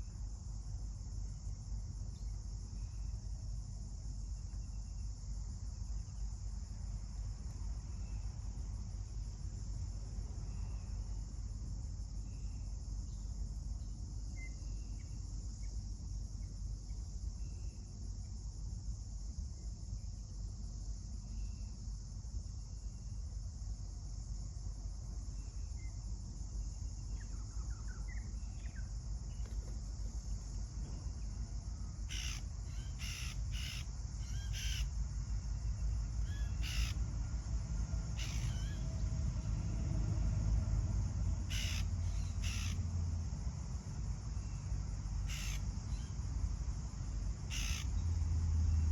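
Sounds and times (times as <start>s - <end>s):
insect chorus: 0.0s - 48.9s
faint bird chirps: 12.3s - 15.2s, 32.1s - 34.9s, 36.2s - 37.0s, 38.2s - 38.9s, 41.5s - 42.8s, 45.3s - 46.2s, 47.5s - 48.0s
harsh caw-like bird calls: 32.1s - 34.9s, 36.2s - 37.0s, 38.2s - 38.9s, 41.5s - 42.8s, 45.2s - 46.2s, 47.5s - 48.0s.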